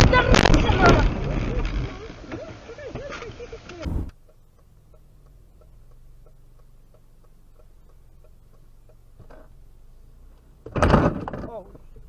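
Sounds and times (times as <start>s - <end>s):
steady ticking: 3.7s - 10.5s
loud sudden sound: 3.8s - 4.2s
low hum: 3.8s - 6.8s.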